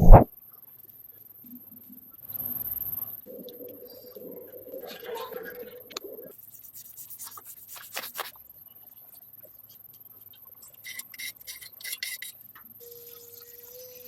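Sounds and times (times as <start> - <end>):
hand rubbing and scraping: 0.0 - 0.3, 4.0 - 8.4.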